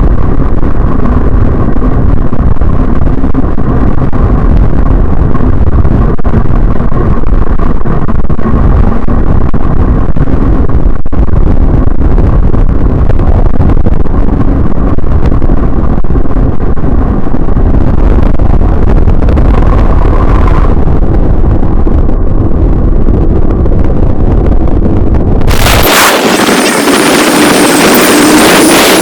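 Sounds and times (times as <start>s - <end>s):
wind buffeting microphone: 0.0s - 29.0s
road noise: 16.8s - 29.0s
motorcycle engine: 25.4s - 29.0s.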